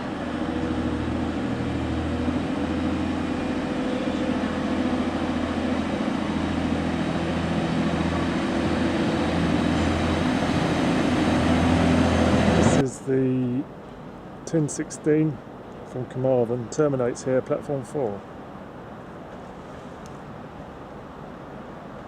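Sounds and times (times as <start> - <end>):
train engines humming: 0.0 - 12.9.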